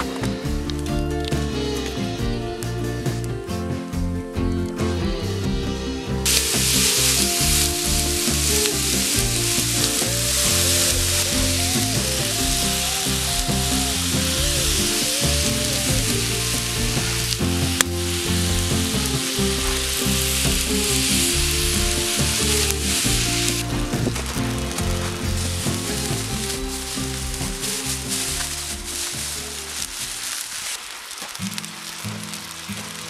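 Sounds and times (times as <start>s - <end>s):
background music: 0.0s - 30.4s
vegetables sizzling in a frying pan: 6.2s - 33.0s.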